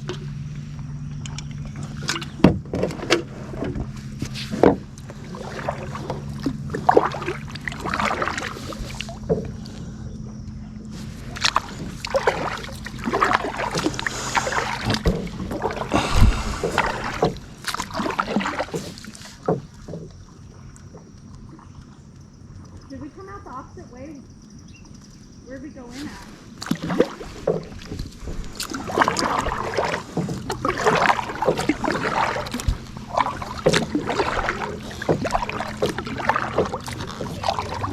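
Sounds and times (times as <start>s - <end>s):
paddle knocking against hull: 0.0s - 9.8s, 10.5s - 21.1s, 26.6s - 37.9s
low hum: 0.0s - 18.2s
paddle splashing water: 0.0s - 37.9s.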